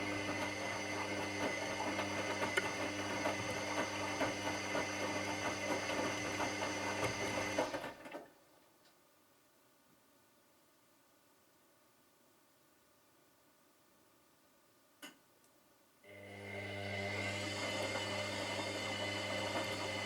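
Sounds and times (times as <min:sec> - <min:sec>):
washing machine running: 0:00.0 - 0:08.1, 0:16.1 - 0:20.0.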